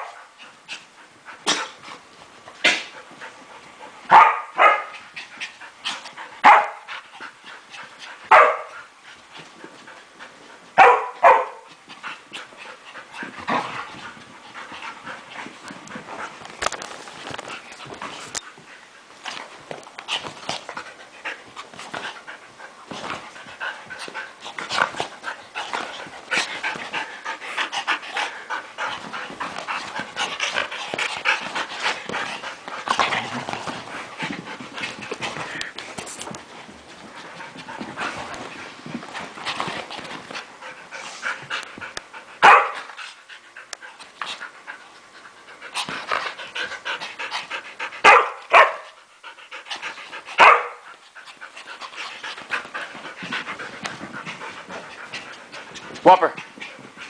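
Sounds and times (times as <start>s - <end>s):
dogs scuffling: 0.4s - 57.0s
dogs panting: 11.6s - 57.0s.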